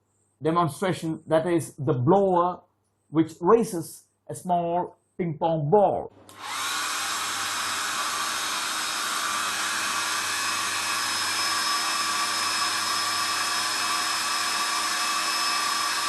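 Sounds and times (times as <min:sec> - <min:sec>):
electric blower rushing air: 0:06.3 - 0:16.0
motor whine: 0:06.3 - 0:16.0.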